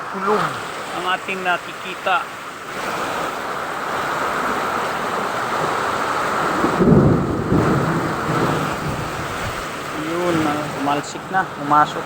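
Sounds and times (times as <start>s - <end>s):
heavy rain falling: 0.0s - 12.0s
thunder rumbling: 5.6s - 10.8s.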